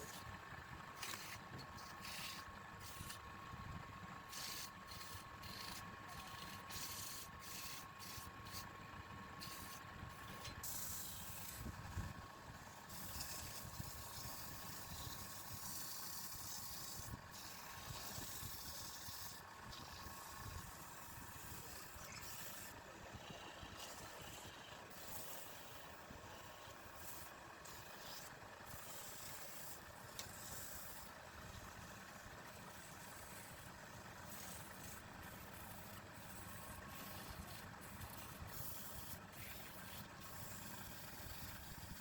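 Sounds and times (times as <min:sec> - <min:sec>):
turning tool hissing on wood: 0:09.4 - 0:11.7, 0:12.9 - 0:42.0.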